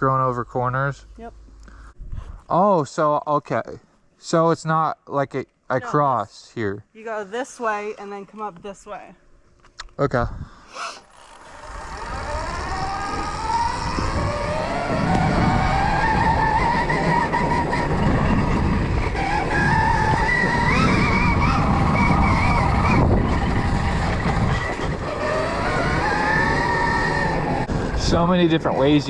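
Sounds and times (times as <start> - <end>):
electric dirt bike motor whining: 10.7 - 28.2.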